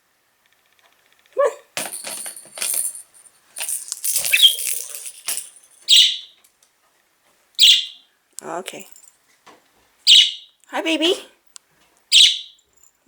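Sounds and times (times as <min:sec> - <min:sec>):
light rattling: 0:01.8 - 0:06.0
budgie chirping: 0:04.1 - 0:06.3, 0:07.6 - 0:08.0, 0:10.1 - 0:10.5, 0:12.1 - 0:12.6.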